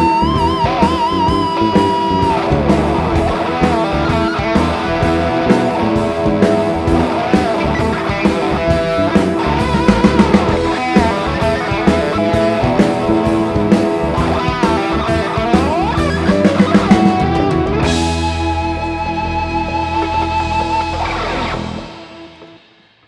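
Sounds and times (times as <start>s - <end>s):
drum kit: 0.0s - 23.0s
lead electric guitar: 0.0s - 23.0s.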